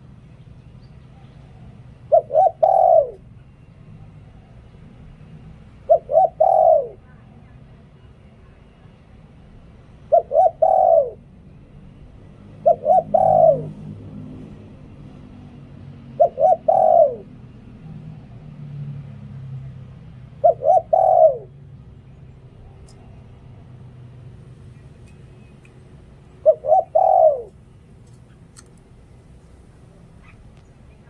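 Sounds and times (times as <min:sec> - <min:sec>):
dove cooing: 0:01.1 - 0:03.4, 0:05.6 - 0:07.1, 0:10.0 - 0:11.4, 0:12.4 - 0:14.5, 0:16.0 - 0:17.4, 0:20.3 - 0:21.8, 0:24.2 - 0:31.0.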